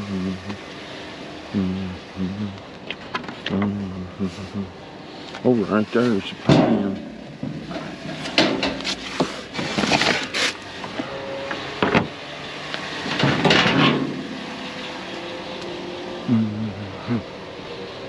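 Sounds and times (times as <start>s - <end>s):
steady low hum: 0.0s - 11.1s, 13.0s - 18.0s
scrap metal and wood clattering: 5.9s - 11.1s, 13.0s - 14.6s.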